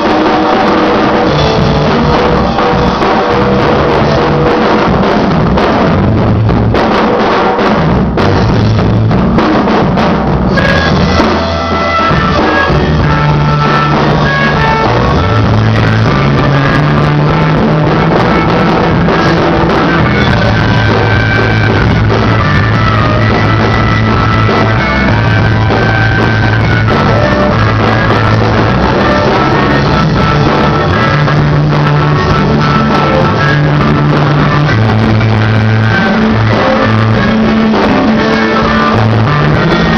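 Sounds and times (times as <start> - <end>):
bass guitar held notes: 0.0 - 39.9
drum kit: 0.0 - 39.9
electric guitar: 0.0 - 39.9.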